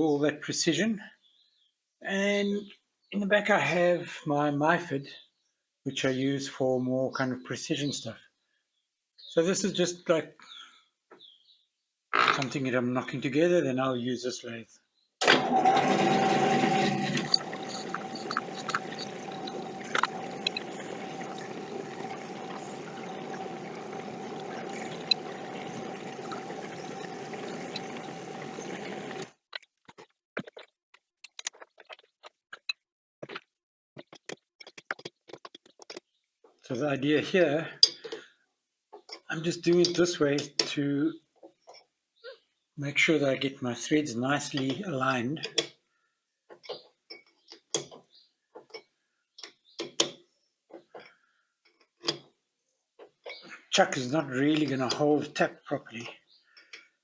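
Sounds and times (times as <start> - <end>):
metal lathe humming and whining: 15.2 - 29.3.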